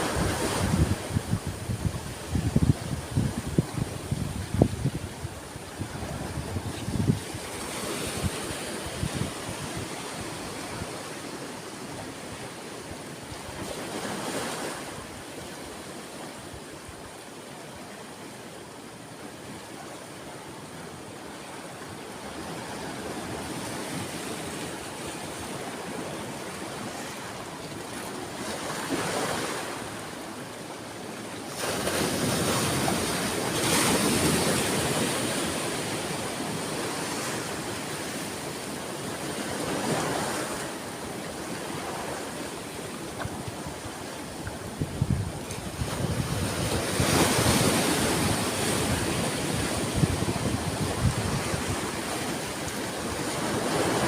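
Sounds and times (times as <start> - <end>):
wind buffeting microphone: 0.0 - 10.9, 44.5 - 52.4
ocean waves breaking on shore: 0.0 - 54.0.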